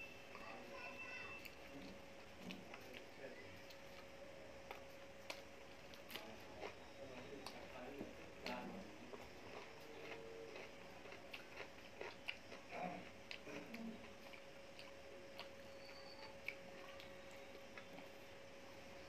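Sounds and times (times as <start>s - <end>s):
faint steady hum: 0.0s - 19.0s
person chewing: 1.4s - 7.8s, 8.4s - 18.3s
soft mouth clicks and smacks: 2.4s - 6.3s.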